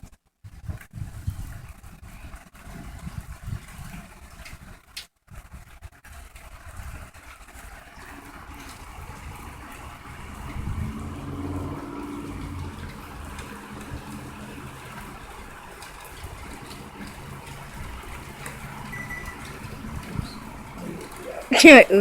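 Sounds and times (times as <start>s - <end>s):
heavy rain falling: 7.4s - 22.0s
low rumble: 8.3s - 21.3s.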